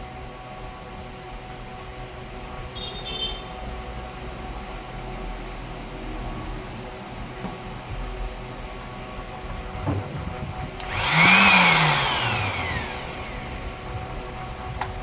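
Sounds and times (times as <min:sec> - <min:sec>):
electric sander motor: 0:10.8 - 0:14.4.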